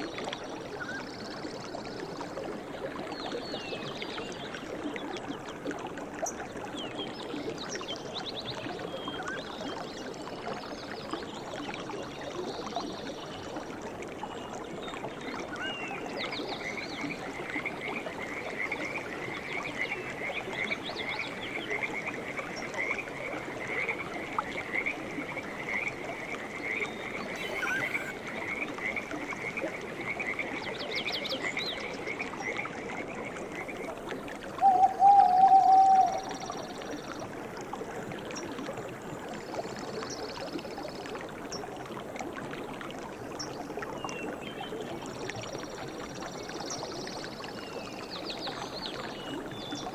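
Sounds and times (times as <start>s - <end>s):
frog croaking: 27.3s - 29.5s
high chirps: 27.4s - 28.2s
loud steady tone: 27.4s - 28.2s.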